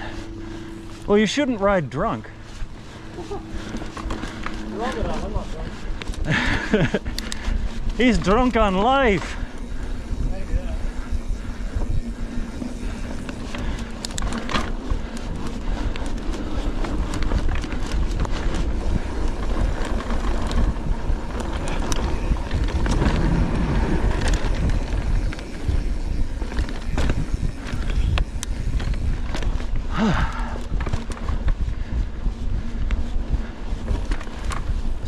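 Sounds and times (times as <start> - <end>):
bike clicking and rattling: 0.0 - 35.0
bike tyres rumbling on dirt: 0.0 - 35.0.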